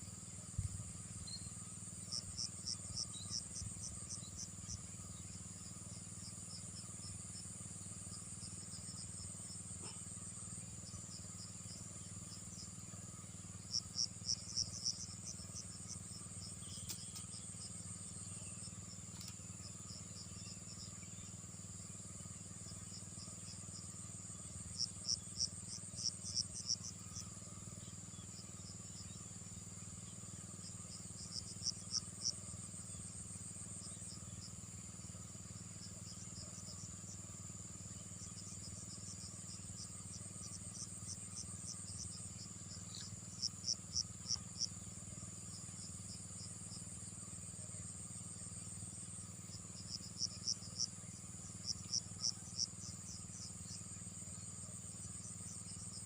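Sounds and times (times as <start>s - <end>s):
insect high-pitched trill: 0.0s - 56.0s
loud sharp insect chirps: 0.0s - 56.0s.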